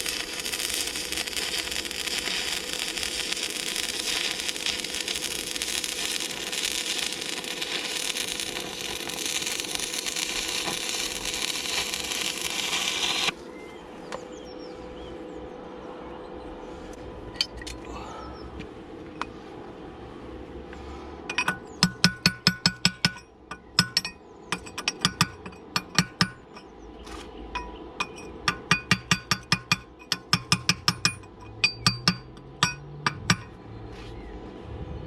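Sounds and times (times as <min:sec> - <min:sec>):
hammer striking steel: 0:21.3 - 0:26.7, 0:27.6 - 0:33.6.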